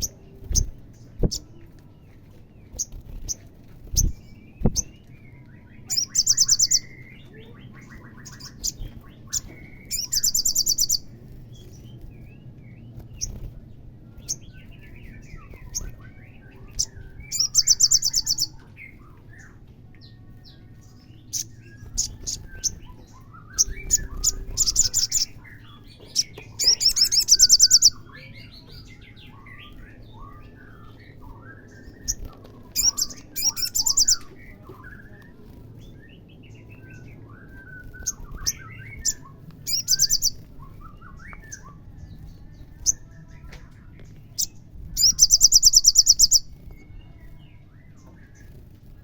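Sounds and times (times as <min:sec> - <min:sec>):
bird trilling: 0:21.3 - 0:28.1, 0:31.7 - 0:34.3, 0:44.4 - 0:46.5
bird chirps and whistles: 0:37.3 - 0:41.8.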